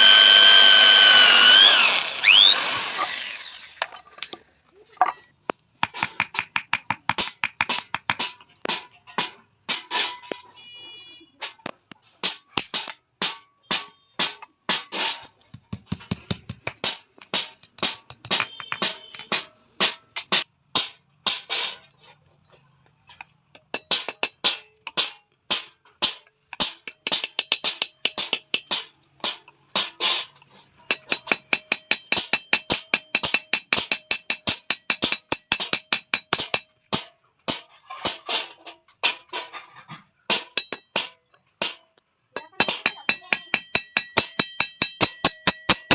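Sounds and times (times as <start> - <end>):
hammer striking steel on anvil: 15.6 - 20.9, 23.6 - 28.9, 30.9 - 36.7, 40.3 - 41.8, 42.4 - 45.9.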